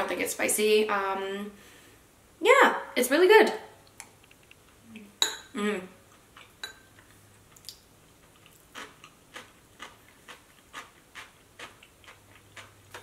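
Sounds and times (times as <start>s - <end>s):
crunchy chewing: 6.1s - 13.0s.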